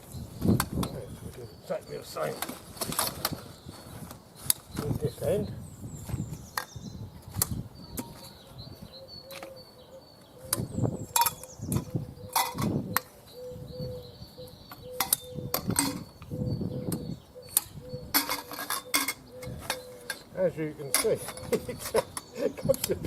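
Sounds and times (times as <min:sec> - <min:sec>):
birds chirping: 0:00.0 - 0:23.0
clicks and knocks of parts handled: 0:14.7 - 0:16.3, 0:20.9 - 0:23.0.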